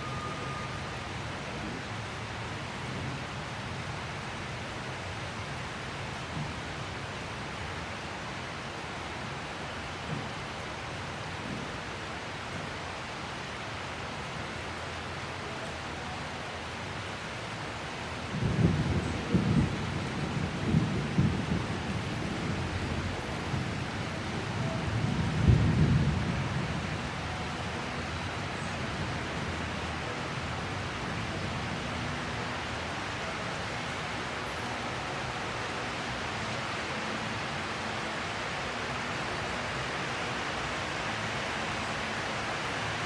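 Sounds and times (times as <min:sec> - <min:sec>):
steady rain falling: 0:00.0 - 0:43.0
thunder rumbling: 0:18.3 - 0:27.3.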